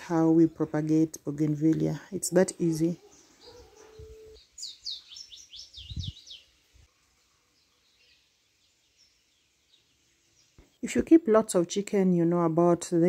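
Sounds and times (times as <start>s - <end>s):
bird singing high chirps: 2.8s - 6.6s, 7.5s - 10.9s.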